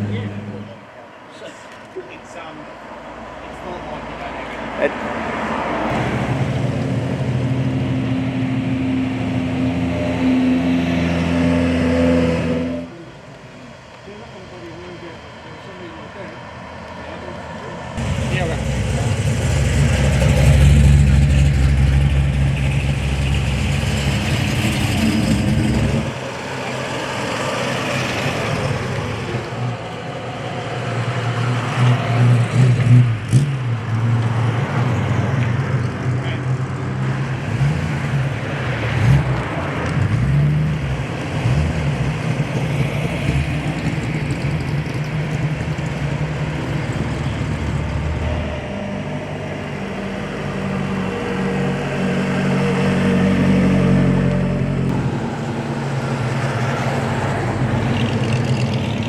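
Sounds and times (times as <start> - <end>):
car engine idling and revving: 0.0 - 59.0
heavy deep car engine: 11.7 - 34.3.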